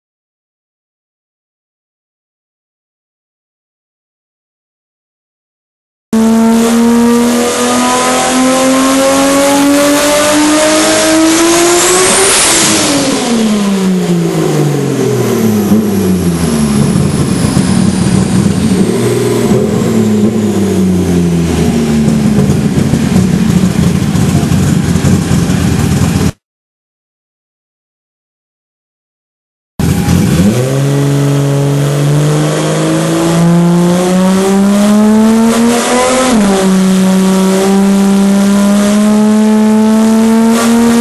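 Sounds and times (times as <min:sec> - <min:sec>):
car engine revving: 0:06.2 - 0:26.4, 0:29.8 - 0:41.0
turbo whine: 0:13.0 - 0:26.3.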